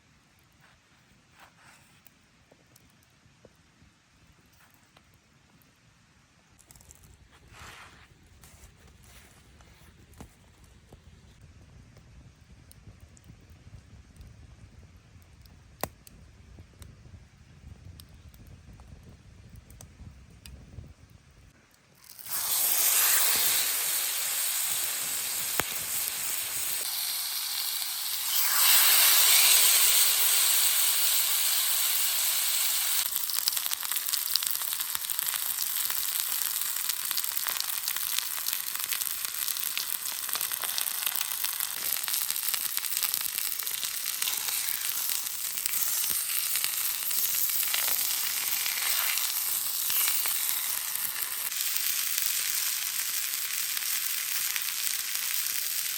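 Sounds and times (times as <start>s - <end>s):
food sizzling on hot stone: 22.0s - 55.9s.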